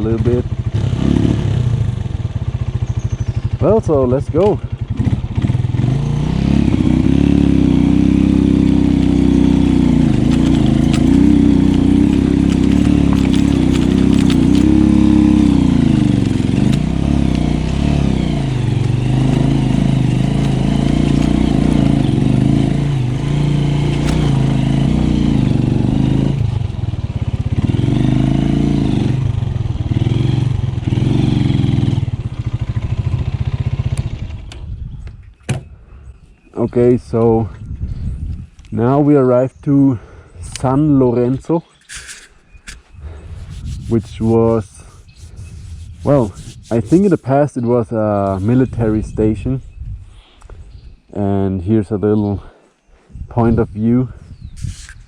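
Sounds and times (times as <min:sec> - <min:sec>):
motorcycle engine revving: 0:00.0 - 0:34.8, 0:41.8 - 0:49.6.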